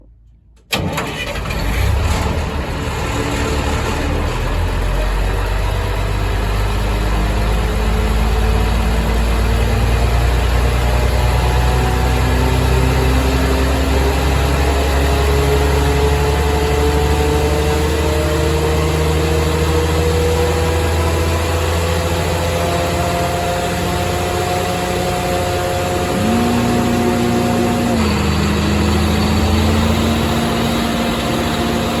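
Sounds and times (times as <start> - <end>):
diesel generator deep hum: 0.0 - 32.0
whine rising in pitch: 7.7 - 32.0.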